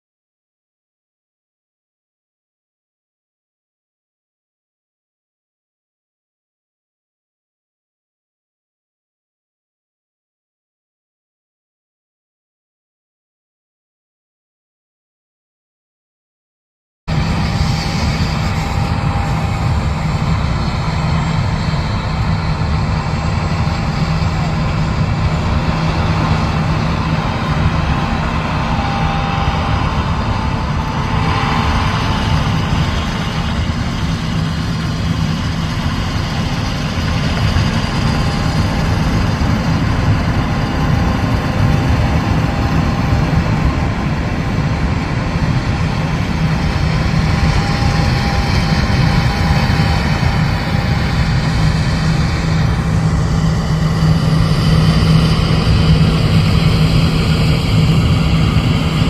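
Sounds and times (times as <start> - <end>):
combine harvester engine drone: 17.1 - 59.0.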